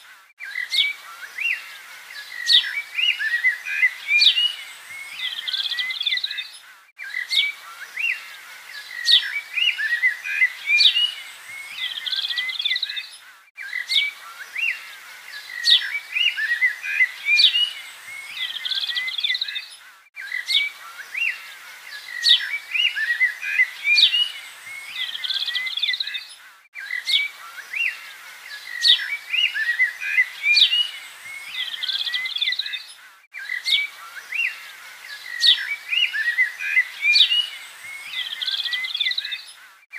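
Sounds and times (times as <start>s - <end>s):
birds chirping and singing: 0.4s - 39.7s.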